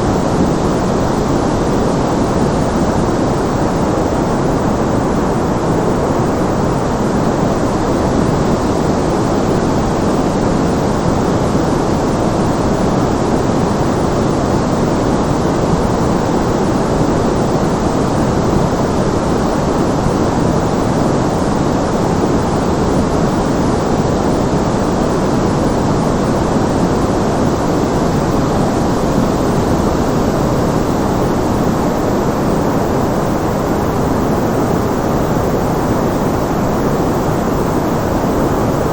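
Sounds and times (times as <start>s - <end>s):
white noise rush: 0.0s - 38.9s.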